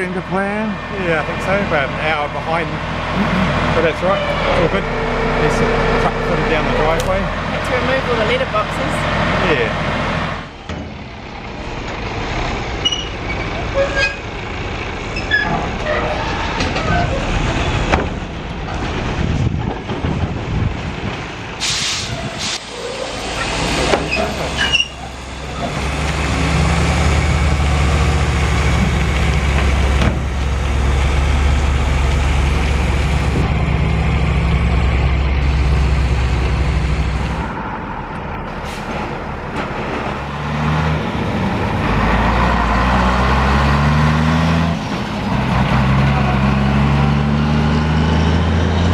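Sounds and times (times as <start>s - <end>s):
heavy truck engine: 0.0s - 48.9s
air brakes hissing: 21.6s - 25.0s.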